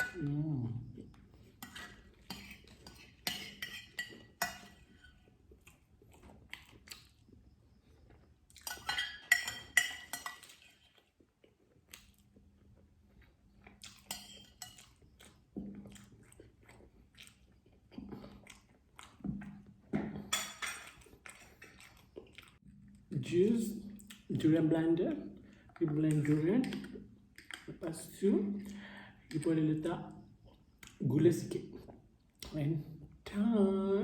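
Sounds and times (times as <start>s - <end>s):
metal spoon clinking on dish: 0.0s - 0.3s, 1.6s - 5.1s, 8.6s - 10.6s, 14.1s - 14.9s
quiet chewing: 0.8s - 9.0s, 10.3s - 23.1s.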